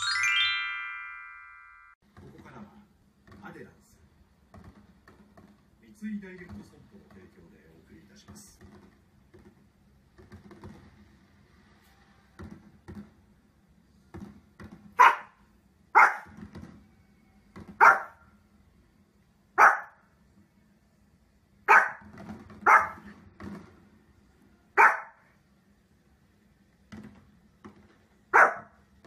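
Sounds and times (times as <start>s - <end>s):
small dog barking: 15.0s - 16.3s, 17.8s - 18.2s, 19.6s - 20.0s, 21.7s - 23.1s, 24.8s - 25.3s, 28.3s - 28.8s.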